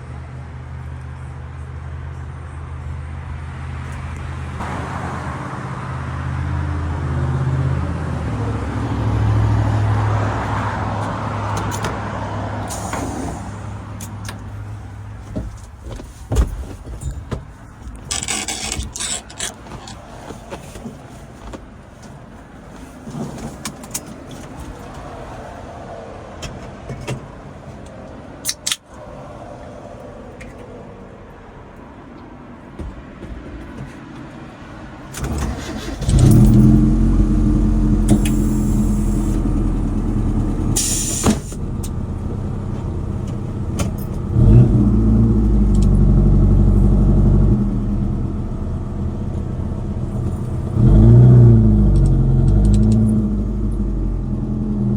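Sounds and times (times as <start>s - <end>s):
pickup truck engine driving: 35.2s - 54.9s
brief hiss: 40.8s - 41.6s.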